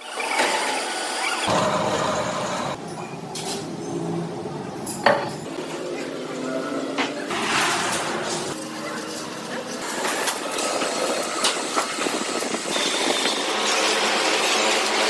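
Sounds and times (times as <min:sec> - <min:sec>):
machinery hum: 0:01.5 - 0:05.7
metalworking clattering: 0:04.8 - 0:05.6, 0:07.3 - 0:08.6.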